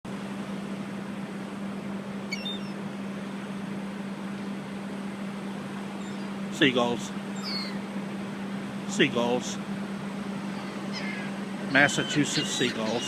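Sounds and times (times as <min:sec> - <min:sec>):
open-air noise: 0:00.0 - 0:13.0
low hum: 0:00.1 - 0:13.0
gull call: 0:07.3 - 0:07.9, 0:10.3 - 0:13.0.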